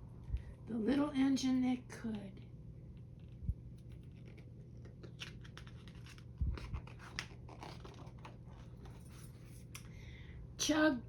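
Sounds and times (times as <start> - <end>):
book pages turning: 3.2 - 9.8.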